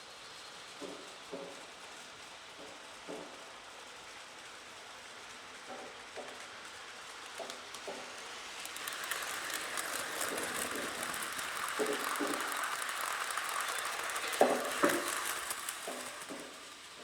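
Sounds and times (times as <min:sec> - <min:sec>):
model train rolling on track: 0:00.0 - 0:17.0
freight car rolling sounds from speaker: 0:07.7 - 0:17.0.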